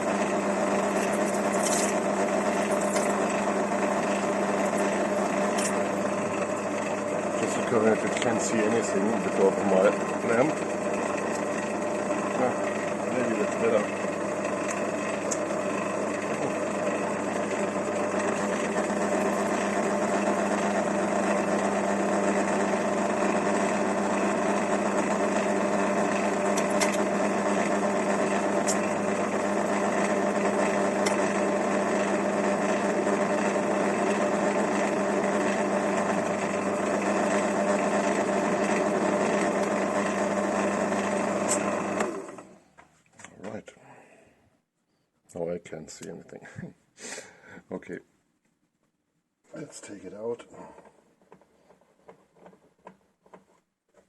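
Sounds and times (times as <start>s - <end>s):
electric drill drilling metal: 0.0s - 42.6s.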